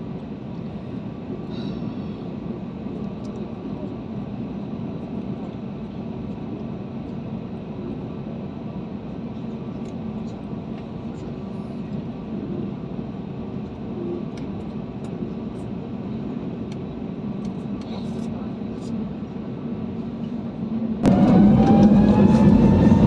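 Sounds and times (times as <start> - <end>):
airliner cabin hum: 0.0 - 23.0.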